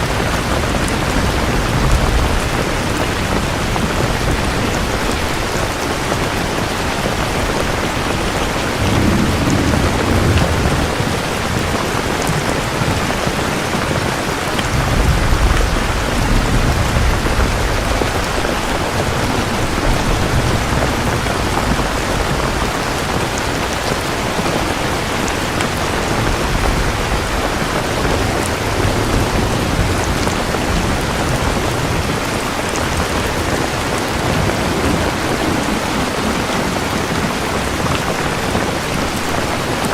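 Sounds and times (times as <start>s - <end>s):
heavy rain falling: 0.0s - 39.9s
low rolling thunder: 0.0s - 39.9s.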